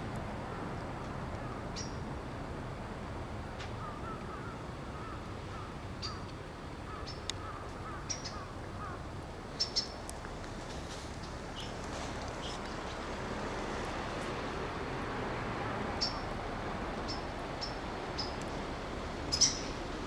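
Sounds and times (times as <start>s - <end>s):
sharp high bird chirps: 19.3s - 19.7s
birds calling wavering notes: 19.3s - 19.8s.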